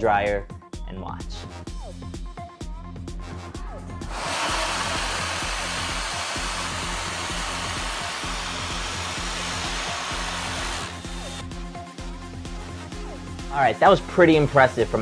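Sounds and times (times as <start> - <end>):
electric hand dryer blowing: 4.1 - 11.4.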